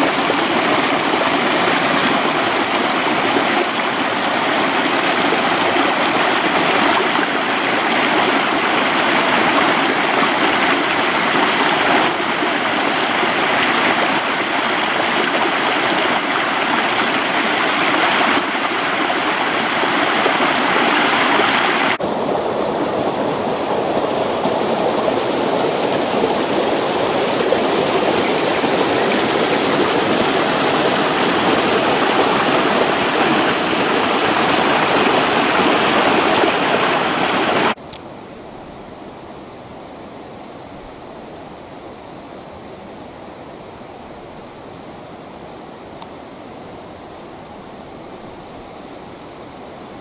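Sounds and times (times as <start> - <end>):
creek water rushing over rocks: 0.0 - 37.8.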